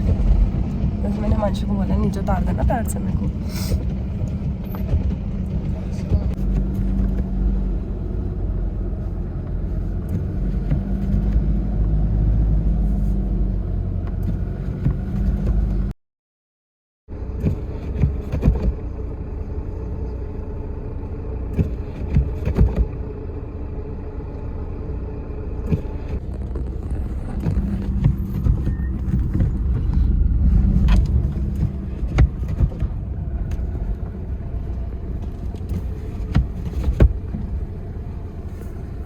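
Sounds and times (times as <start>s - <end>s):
car knocks and clicks: 0.0s - 7.4s, 10.0s - 11.6s, 14.0s - 15.9s, 17.4s - 18.9s, 21.5s - 23.0s, 25.6s - 37.8s
engine and road rumble: 0.0s - 16.0s, 17.1s - 39.0s.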